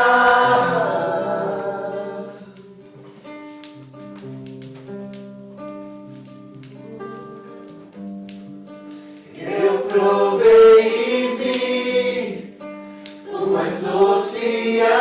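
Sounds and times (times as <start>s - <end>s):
voices singing worship song: 0.0s - 2.8s, 9.3s - 12.6s, 13.2s - 15.0s
acoustic guitar strumming chords: 0.0s - 15.0s.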